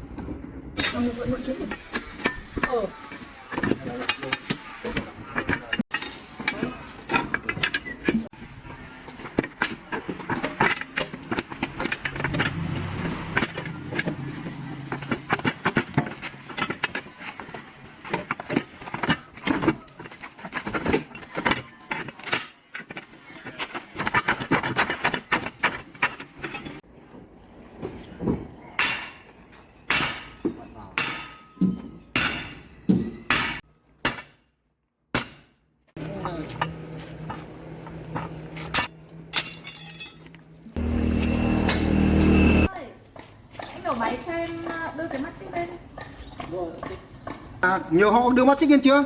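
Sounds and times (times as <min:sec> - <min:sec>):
hand tools clinking on metal: 0:01.7 - 0:08.3, 0:09.0 - 0:26.8, 0:28.8 - 0:34.4, 0:35.2 - 0:40.9
low hum: 0:11.9 - 0:14.9.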